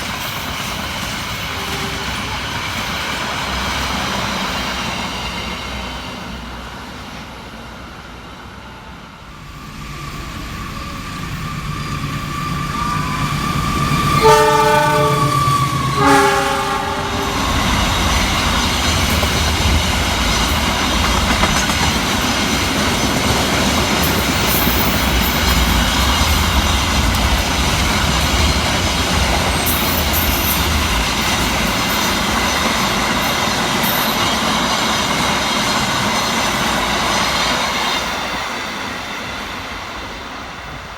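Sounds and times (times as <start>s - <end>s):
train wheels rumbling and clattering: 0.0s - 8.5s, 9.2s - 40.9s
train horn blasts: 1.5s - 2.4s, 13.9s - 17.9s
high wheel squeals: 9.7s - 18.6s.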